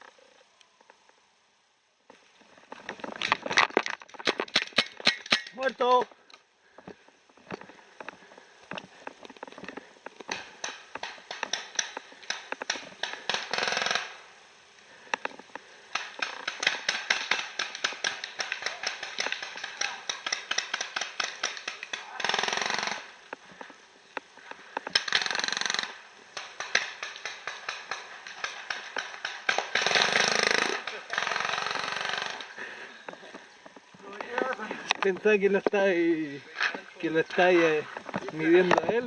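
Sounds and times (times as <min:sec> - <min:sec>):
leaves rustling: 0:00.0 - 0:39.0
dry brush crackling underfoot: 0:32.4 - 0:39.0.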